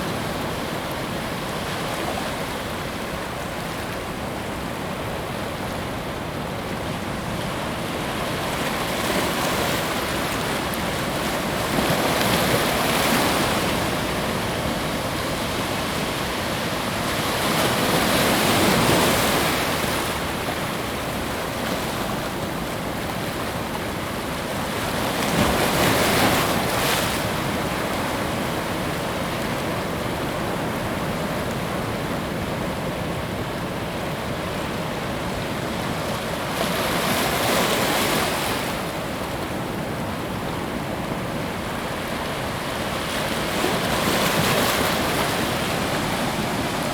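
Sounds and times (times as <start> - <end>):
ocean surf on beach: 0.0 - 46.9.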